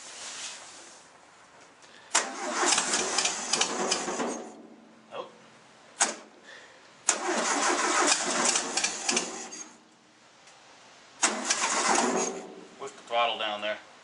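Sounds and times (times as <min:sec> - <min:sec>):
car engine cranking: 0:02.1 - 0:04.6, 0:06.0 - 0:06.3, 0:07.0 - 0:09.8, 0:11.2 - 0:12.7.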